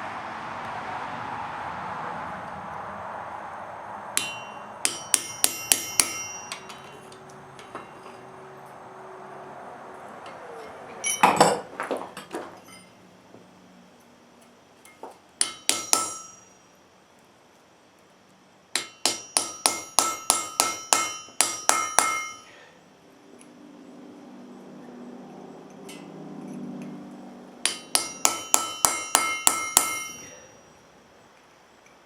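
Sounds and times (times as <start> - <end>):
hammer striking chisel on metal: 4.2 - 8.3, 15.4 - 16.7, 18.7 - 22.6, 27.6 - 30.5.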